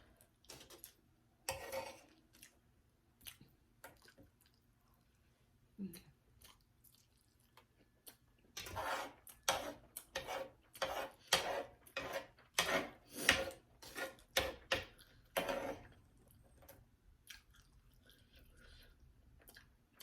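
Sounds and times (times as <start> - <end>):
crisp chewing of food: 2.1 - 5.3, 6.3 - 8.6, 17.2 - 20.0.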